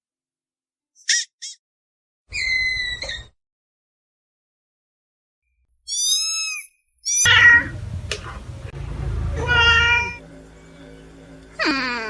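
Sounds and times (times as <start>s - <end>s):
low rumbling background: 7.3s - 12.0s.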